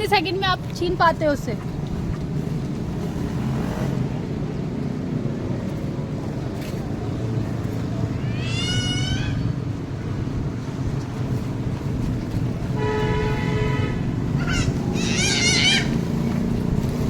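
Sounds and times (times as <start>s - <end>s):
child squealing: 8.2s - 9.6s, 14.4s - 16.0s.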